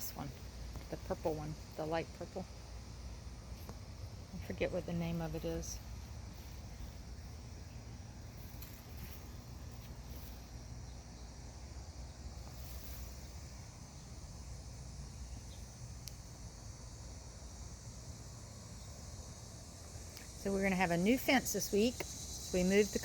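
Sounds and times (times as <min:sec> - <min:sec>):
crickets chirring: 0:00.0 - 0:23.0
faint clicks: 0:16.0 - 0:16.2.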